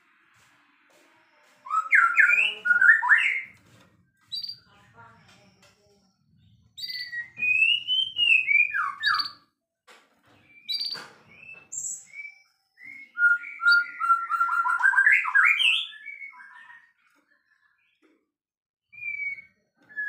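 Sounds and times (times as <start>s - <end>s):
bird singing whistled phrases: 1.7s - 3.5s, 6.8s - 9.4s, 10.5s - 16.9s, 18.9s - 20.0s.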